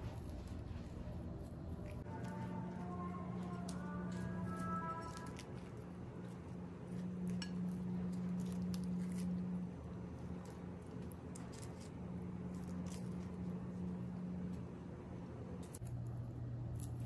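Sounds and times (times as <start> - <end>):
charred skin crackling when peeled: 0.0 - 17.0
low hum: 0.0 - 17.0.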